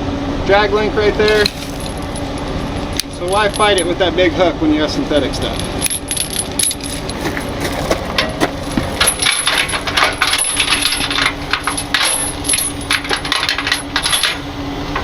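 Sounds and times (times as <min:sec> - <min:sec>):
steady hum: 0:00.0 - 0:15.0
metal hardware clinking: 0:01.3 - 0:04.0, 0:05.4 - 0:14.4.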